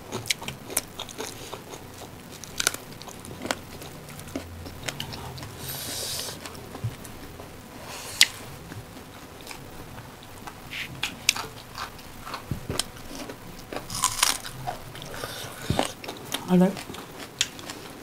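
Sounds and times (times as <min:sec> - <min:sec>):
people chewing: 0:00.0 - 0:18.0.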